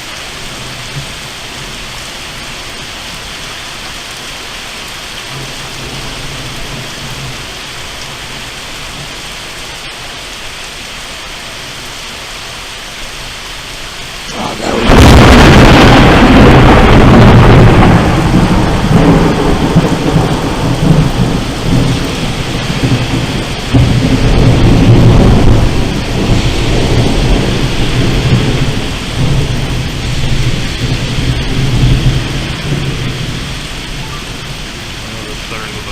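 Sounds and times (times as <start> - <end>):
rain hissing: 0.0 - 35.9
thunderclap and rumbling: 5.2 - 9.2, 14.2 - 35.9.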